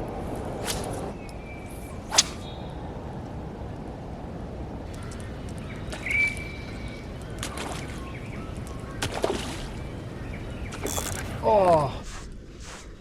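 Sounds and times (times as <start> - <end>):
wind: 0.0 - 13.0
water noise: 1.8 - 10.9
whistled bird call: 6.0 - 7.0.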